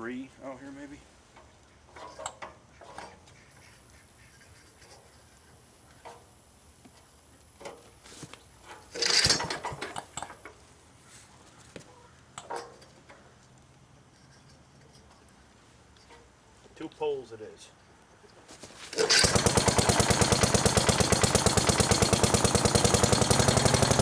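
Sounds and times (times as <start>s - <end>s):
starter rope rasp: 8.7s - 9.8s, 18.9s - 24.0s
engine turning over: 8.8s - 10.5s, 18.9s - 24.0s.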